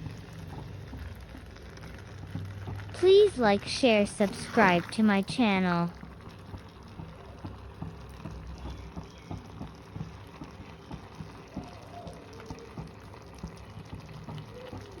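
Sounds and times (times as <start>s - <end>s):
soft pops and crackles: 0.0s - 15.0s.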